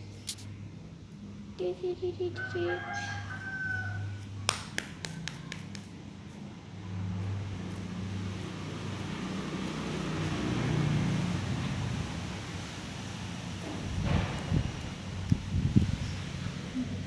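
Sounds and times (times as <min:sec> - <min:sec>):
vehicle engine passing by: 0:06.2 - 0:17.0.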